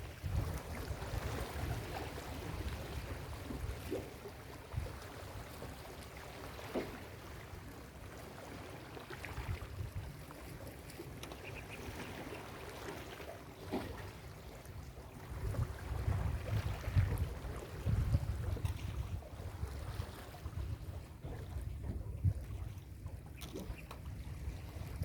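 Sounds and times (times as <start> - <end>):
wind rumble on microphone: 0.0 - 5.7, 9.3 - 10.3, 14.7 - 25.0.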